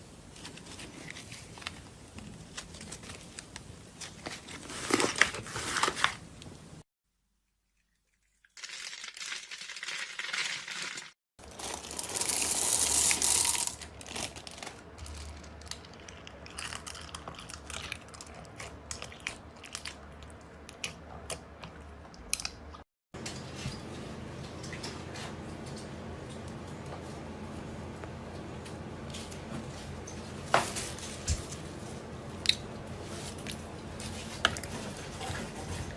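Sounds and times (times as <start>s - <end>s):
slime being stirred: 15.2s - 22.2s.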